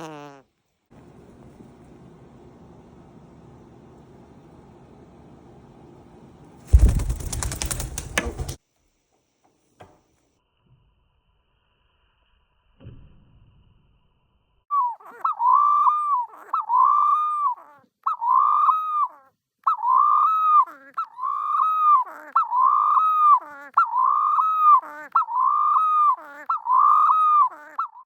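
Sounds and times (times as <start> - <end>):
dove calling: 6.7 - 8.6.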